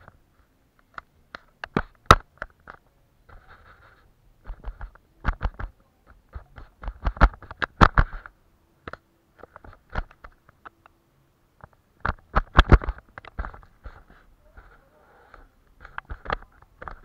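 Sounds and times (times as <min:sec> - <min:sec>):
brush strokes on paper: 0:03.2 - 0:04.2, 0:13.8 - 0:15.6.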